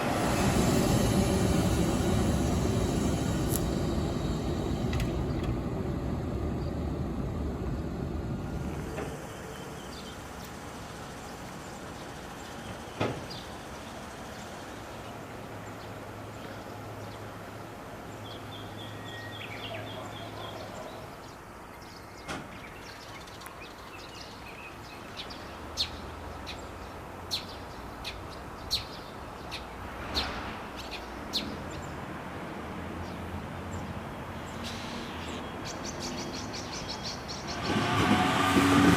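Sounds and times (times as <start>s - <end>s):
train rumbling past: 0.0s - 21.4s, 29.7s - 38.9s.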